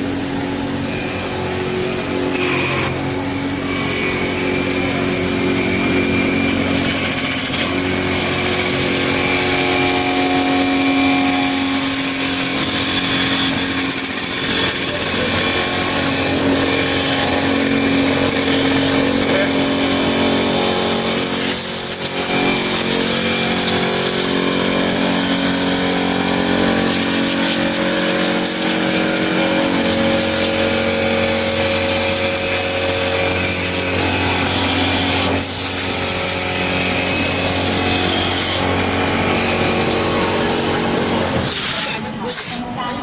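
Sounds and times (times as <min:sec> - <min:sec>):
wood lathe cutting wood: 0:00.0 - 0:42.7.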